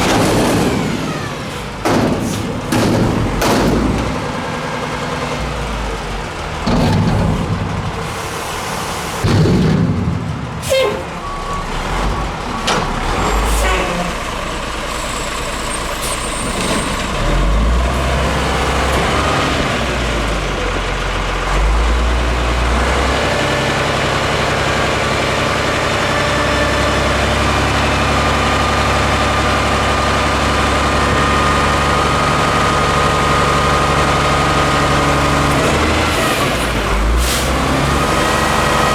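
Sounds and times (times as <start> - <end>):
heavy clanks and bangs: 0.0 - 14.2
diesel engine revving: 0.0 - 38.9.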